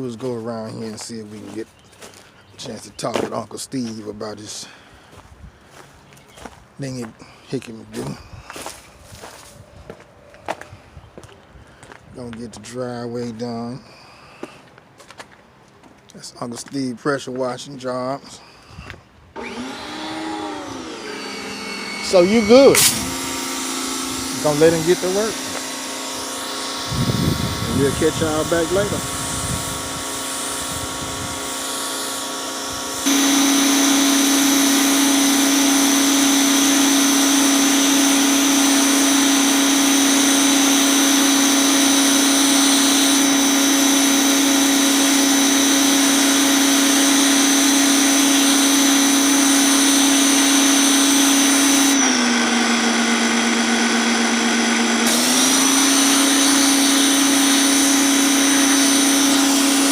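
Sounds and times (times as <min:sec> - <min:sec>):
pressure washer humming: 0:00.0 - 0:05.9, 0:19.4 - 0:59.9
spray hissing: 0:20.2 - 0:52.0, 0:55.0 - 0:59.9.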